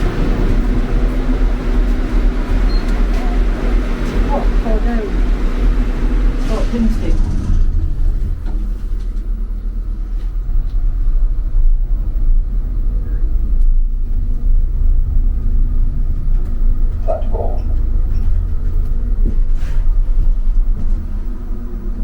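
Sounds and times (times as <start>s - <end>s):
vehicle rumble from inside: 0.0s - 22.0s.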